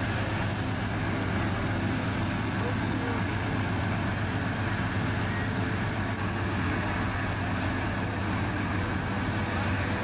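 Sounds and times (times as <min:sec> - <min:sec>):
locomotive diesel engine humming: 0:00.0 - 0:10.0.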